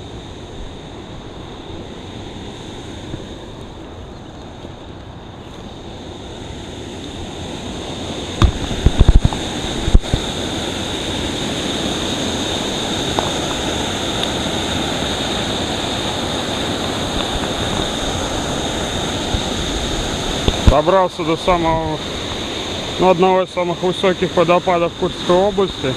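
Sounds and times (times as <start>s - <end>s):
waterfall rushing water: 0.0s - 25.9s
loud thumps: 8.4s - 10.2s.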